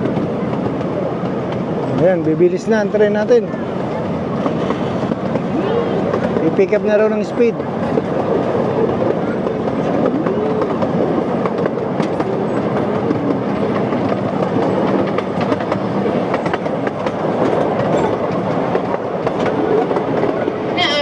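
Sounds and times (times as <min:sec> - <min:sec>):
rumble of wheels on rails: 0:00.0 - 0:21.0
clicks from rail joints: 0:07.6 - 0:20.6.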